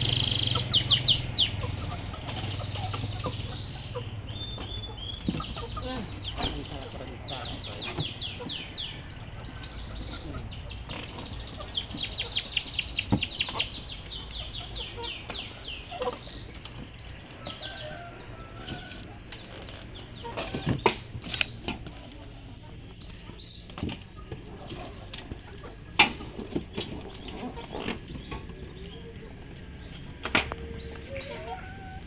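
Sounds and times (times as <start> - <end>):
canary singing trills: 0.0 - 22.0, 26.6 - 32.0.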